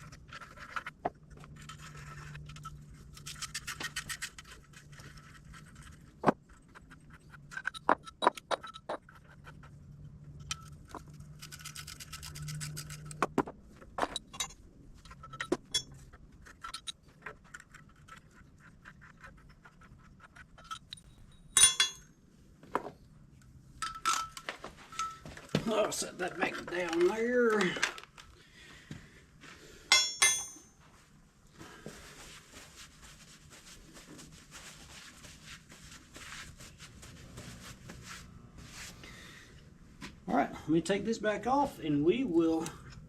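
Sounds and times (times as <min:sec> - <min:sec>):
metal clinks and knocks: 0:00.3 - 0:09.7, 0:13.9 - 0:22.1, 0:23.8 - 0:28.3, 0:29.9 - 0:30.8
sharp metal clatter: 0:20.4 - 0:22.1, 0:29.9 - 0:30.7.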